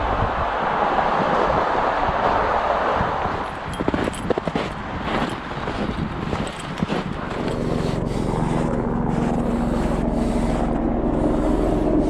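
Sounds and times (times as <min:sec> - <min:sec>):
footsteps crunching in snow: 0:03.3 - 0:11.8
heavy vehicle engine running: 0:05.7 - 0:12.0.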